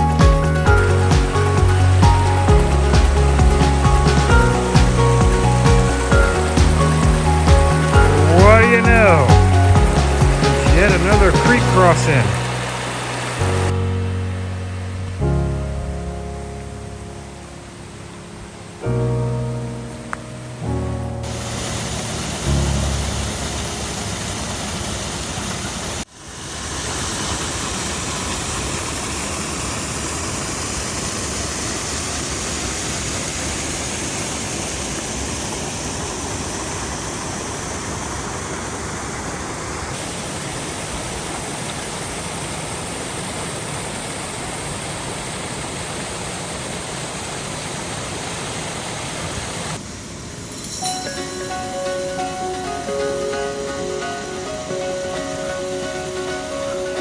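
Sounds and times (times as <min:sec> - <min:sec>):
water rushing over falls: 0:00.0 - 0:13.8, 0:21.2 - 0:57.0.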